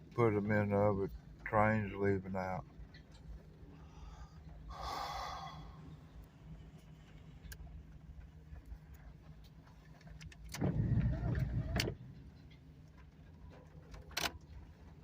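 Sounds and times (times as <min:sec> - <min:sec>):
engine humming at idle: 0:00.0 - 0:15.0
breathy hiss: 0:03.7 - 0:06.0.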